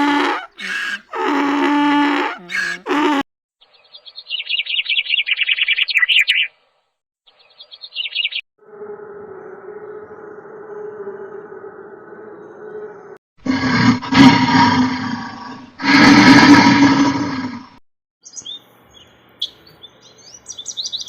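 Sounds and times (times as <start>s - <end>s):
drawn-out animal calls: 0.0s - 3.2s.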